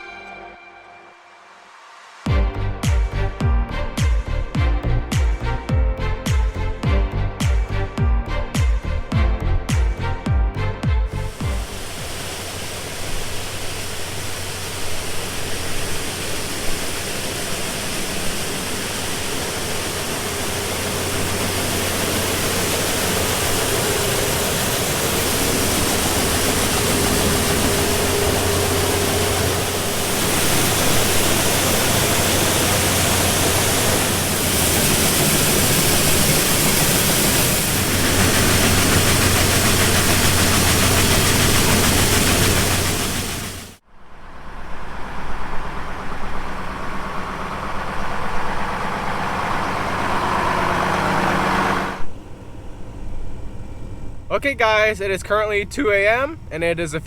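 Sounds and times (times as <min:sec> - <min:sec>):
engine hum: 0:02.3 - 0:57.0
dense rushing hiss: 0:11.1 - 0:52.1.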